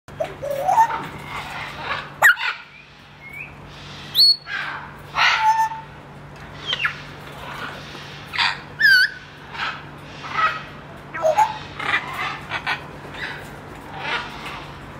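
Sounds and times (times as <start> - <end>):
parrot calls and whistles: 0.4 - 5.9, 6.6 - 13.4.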